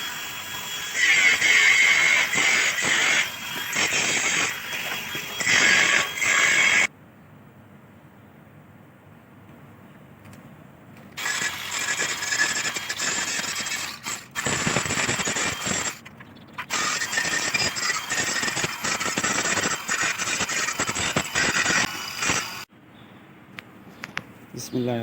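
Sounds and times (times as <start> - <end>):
arc welding crackling and sizzling: 0.0 - 6.9, 16.7 - 22.7.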